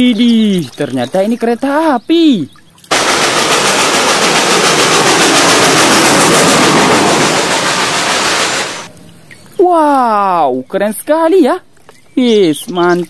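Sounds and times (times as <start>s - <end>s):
train rushing: 2.9s - 8.9s
wheels clattering over rail joints: 2.9s - 8.9s.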